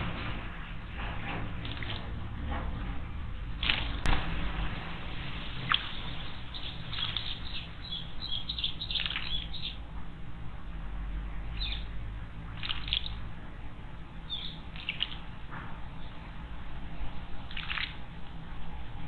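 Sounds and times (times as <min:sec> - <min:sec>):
steady low background noise: 0:00.0 - 0:19.0
small birds chirping: 0:04.8 - 0:09.9, 0:11.3 - 0:18.2.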